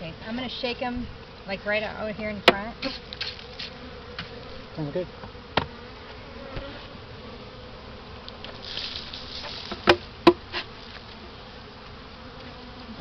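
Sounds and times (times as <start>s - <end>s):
bees buzzing: 0.0s - 13.0s
loud knocks on hive box: 2.4s - 3.4s, 5.2s - 5.8s, 9.7s - 10.5s.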